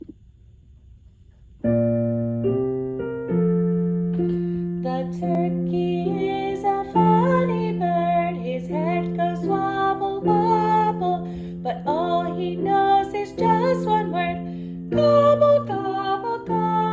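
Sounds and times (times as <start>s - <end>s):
piano playing: 1.6s - 16.9s
woman singing: 4.8s - 16.9s.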